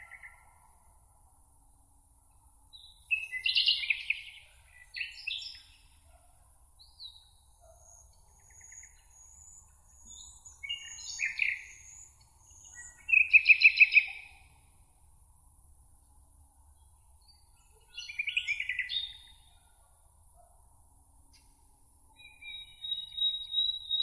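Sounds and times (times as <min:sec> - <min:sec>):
songbirds singing: 0:02.8 - 0:06.2, 0:06.8 - 0:14.6, 0:16.7 - 0:19.6, 0:22.2 - 0:24.0
bird trill: 0:22.2 - 0:24.0.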